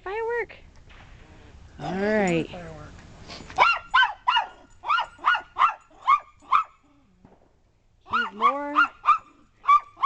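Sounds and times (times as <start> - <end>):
dog yipping: 3.6 - 6.9, 8.1 - 10.0
dog drawn-out call: 3.6 - 7.0.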